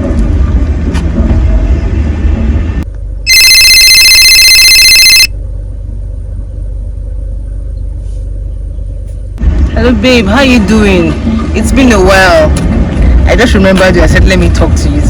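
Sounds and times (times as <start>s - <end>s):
low steady hum: 0.0s - 3.5s, 4.8s - 15.0s.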